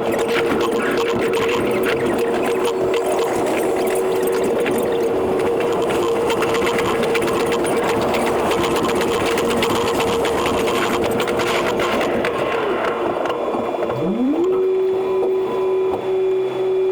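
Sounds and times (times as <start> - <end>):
buzzing tone: 13.9 - 16.0.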